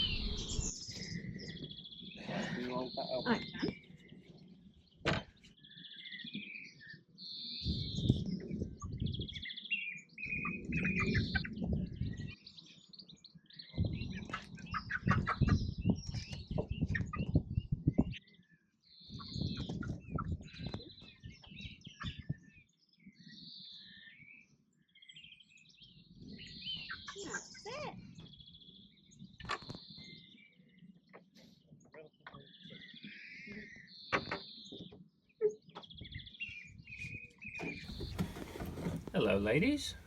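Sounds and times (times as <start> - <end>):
rustling and bumping: 37.9 - 40.0.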